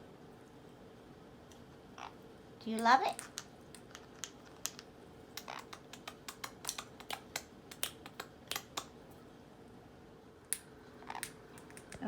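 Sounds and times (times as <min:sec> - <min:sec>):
parrot beak clicking: 0:03.2 - 0:09.0.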